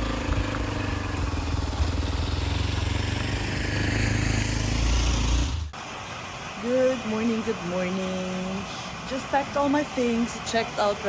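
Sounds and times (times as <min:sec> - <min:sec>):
motorcycle engine running: 0:00.0 - 0:05.7.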